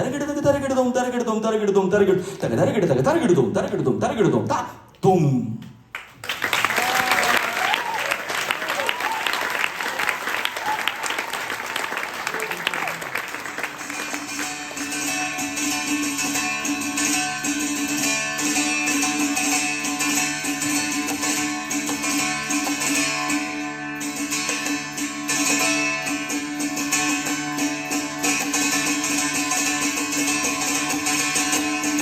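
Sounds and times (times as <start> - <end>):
plucked string instrument: 13.4 - 32.0.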